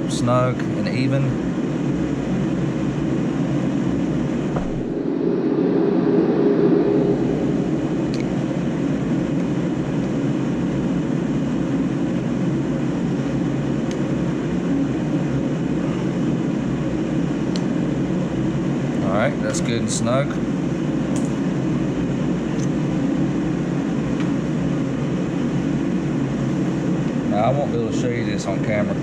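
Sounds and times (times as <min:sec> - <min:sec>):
steady rumble: 0:00.6 - 0:10.6.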